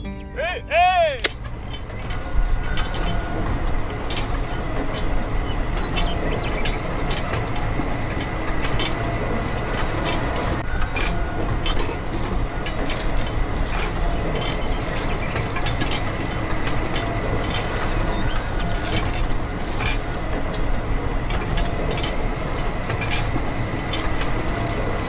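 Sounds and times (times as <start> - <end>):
clicks and rattles: 1.2 - 5.2, 12.6 - 24.8
machine running with low rumble: 1.3 - 25.0
thin steady whine: 1.4 - 25.0.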